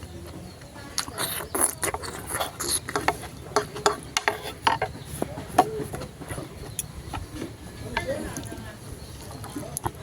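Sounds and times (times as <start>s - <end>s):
chewing and slurping noodles: 0.9s - 5.0s
utensils tapping a dish: 2.7s - 4.9s.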